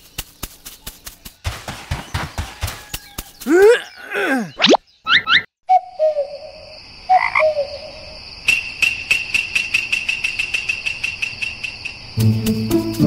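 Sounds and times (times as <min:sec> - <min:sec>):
frogs croaking: 0:06.4 - 0:12.1.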